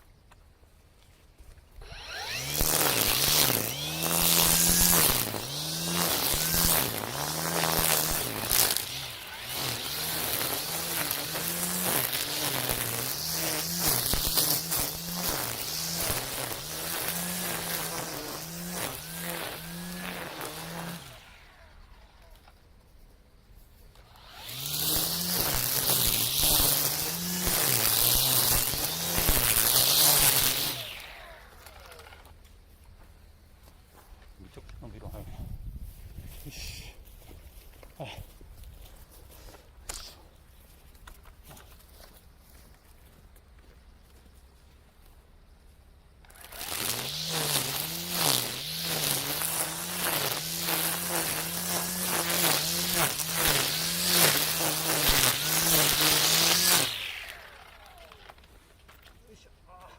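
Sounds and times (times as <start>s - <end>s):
trimmer line swishing through weeds: 1.8s - 22.3s, 24.0s - 32.2s, 46.3s - 58.5s
brush cutter running: 1.8s - 22.7s, 23.9s - 32.5s, 46.2s - 59.9s
small clicks: 31.5s - 32.6s, 57.2s - 59.2s.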